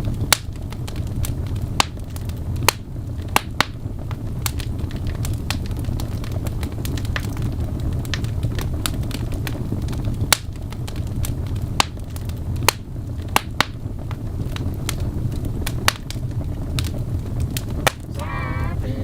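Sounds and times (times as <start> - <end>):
fire crackling and popping: 0.0 - 19.0
low rumble of flames: 0.0 - 19.0
person speaking: 18.1 - 19.0.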